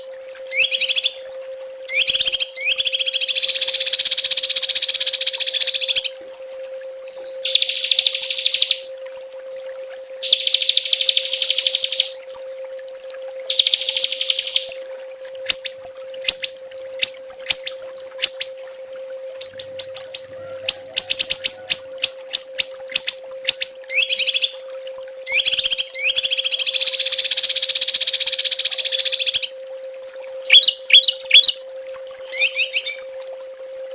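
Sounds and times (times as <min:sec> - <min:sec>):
songbird high trills: 0:00.5 - 0:01.2, 0:01.9 - 0:06.2, 0:07.1 - 0:08.9, 0:09.5 - 0:12.2, 0:13.5 - 0:14.8, 0:15.4 - 0:18.6, 0:19.4 - 0:24.6, 0:25.2 - 0:29.5, 0:30.4 - 0:31.6, 0:32.3 - 0:33.2
songbird sharp chirps: 0:00.5 - 0:01.2, 0:01.9 - 0:06.1, 0:07.1 - 0:08.9, 0:09.5 - 0:12.2, 0:13.5 - 0:14.7, 0:21.1 - 0:24.6, 0:25.3 - 0:29.5, 0:30.5 - 0:31.6.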